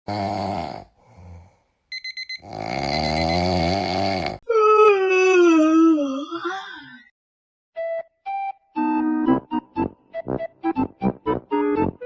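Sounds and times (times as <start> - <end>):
snoring: 0.1 - 1.6, 2.4 - 4.4
electronic alarm clock beeps: 1.9 - 3.9
wavering moan: 4.0 - 7.1.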